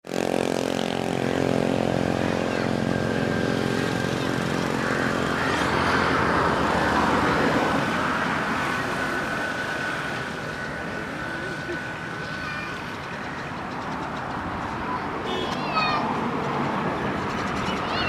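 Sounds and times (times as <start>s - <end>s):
engine humming: 0.0s - 18.0s
rushing noise: 0.3s - 17.9s.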